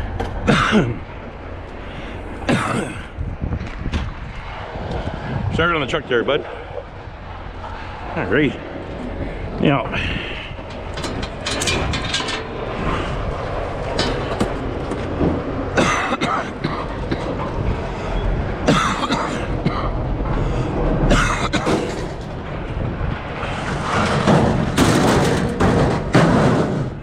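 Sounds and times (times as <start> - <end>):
steady low rumble: 0.0 - 27.0
scrap metal clanking down: 8.9 - 17.6, 21.1 - 22.6, 23.4 - 27.0.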